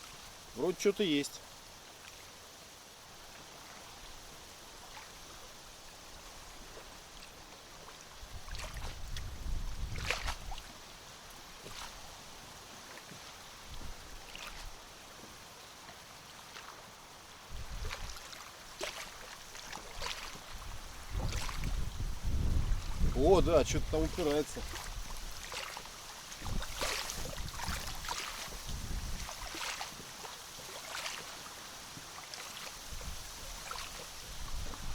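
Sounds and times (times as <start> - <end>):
water lapping against boat: 3.2 - 34.9
wind rumbling on microphone: 8.2 - 10.8, 13.6 - 14.8, 17.5 - 18.2, 19.9 - 25.5, 26.3 - 30.0, 32.8 - 34.9.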